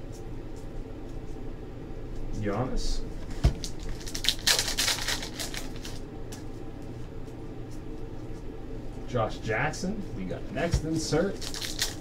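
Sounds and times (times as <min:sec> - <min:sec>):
trading cards flicking and rustling: 0:03.2 - 0:08.5, 0:10.6 - 0:12.0.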